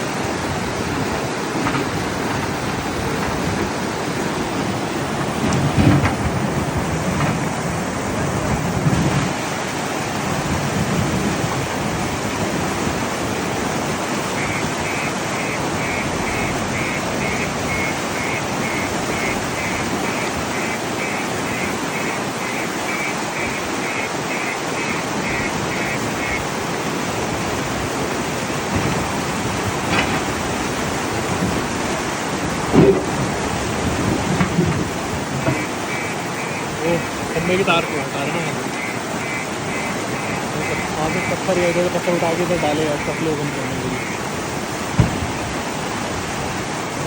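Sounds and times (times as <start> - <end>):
floodwater rushing over road: 0.0 - 47.0
faint high beeps: 14.4 - 26.4.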